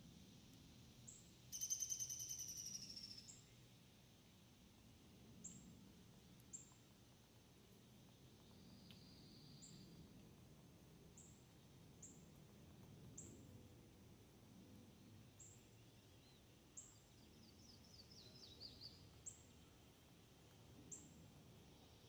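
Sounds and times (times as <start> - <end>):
high falling bird chirps: 1.5 - 3.4.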